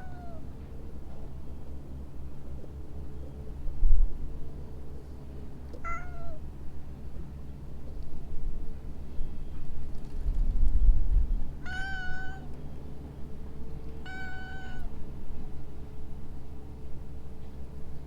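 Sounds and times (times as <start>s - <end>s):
cat meowing: 0.0s - 0.4s, 5.8s - 6.4s, 11.6s - 12.5s, 14.0s - 15.0s.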